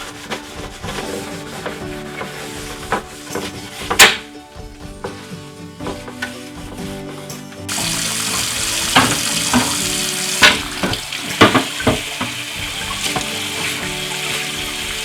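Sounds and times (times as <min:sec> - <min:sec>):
items clattering while washed: 0:00.0 - 0:15.0
soft background music: 0:00.0 - 0:15.0
tap water running into sink: 0:05.8 - 0:15.0.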